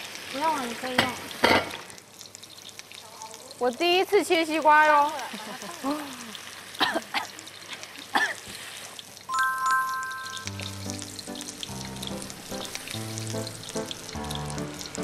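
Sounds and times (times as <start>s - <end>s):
oil sizzling in a wok: 0.0s - 15.0s
short electronic chime: 9.3s - 10.6s.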